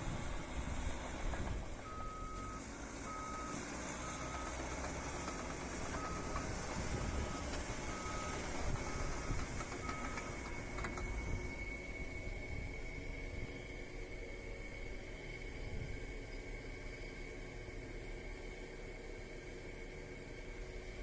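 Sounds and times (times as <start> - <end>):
diesel engine rumble: 0.0 - 21.0
reversing alarm beeping: 1.8 - 12.3.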